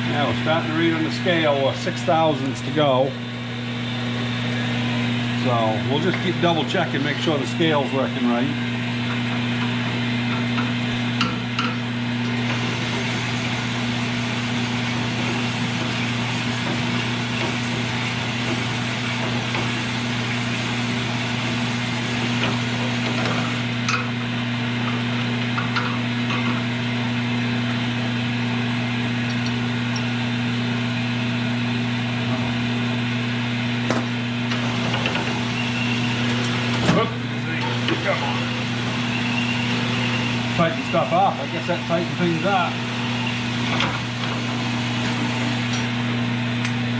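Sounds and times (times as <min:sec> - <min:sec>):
power tool grinding metal: 0:12.3 - 0:23.9, 0:34.5 - 0:46.0.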